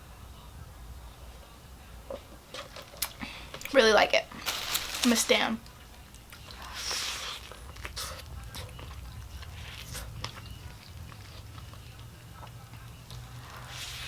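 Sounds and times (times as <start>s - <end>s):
person chewing crunchy food: 6.2s - 13.8s.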